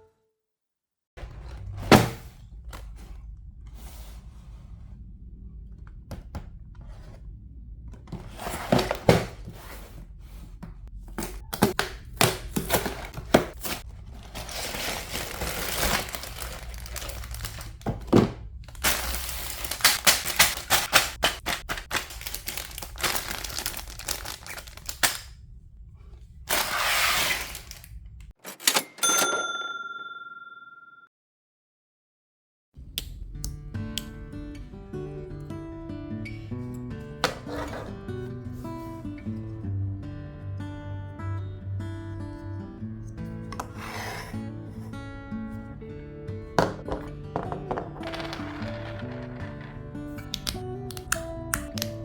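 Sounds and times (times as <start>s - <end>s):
low steady hum: 1.2s - 28.3s
plastic crinkling and rustling: 11.6s - 25.3s, 26.5s - 28.0s.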